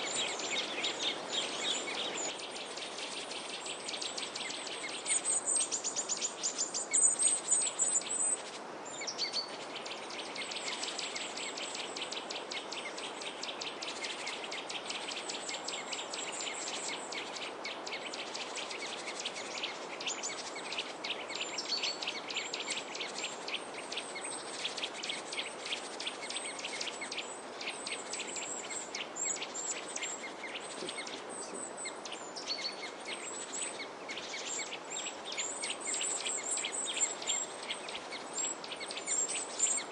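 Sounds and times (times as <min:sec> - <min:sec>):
small birds chirping: 0:00.0 - 0:39.9
steady background hiss: 0:00.0 - 0:39.9.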